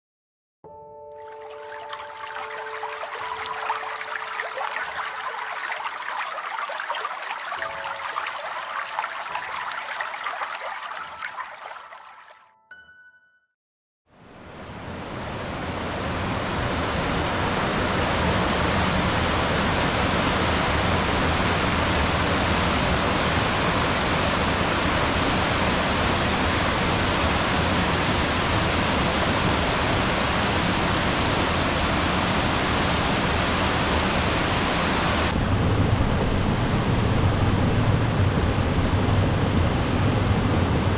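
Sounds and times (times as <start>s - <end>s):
waterfall rushing: 1.3s - 12.4s.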